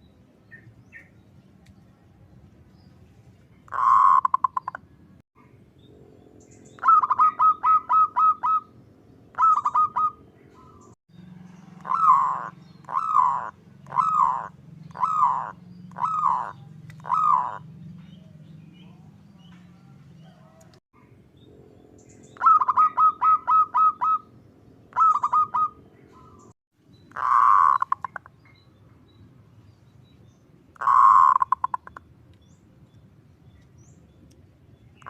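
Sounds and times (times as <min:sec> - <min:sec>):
dove cooing: 0:03.7 - 0:04.8, 0:06.0 - 0:20.8, 0:22.4 - 0:24.3, 0:24.9 - 0:26.4, 0:27.2 - 0:28.2, 0:30.8 - 0:32.0
low steady hum: 0:04.8 - 0:35.0.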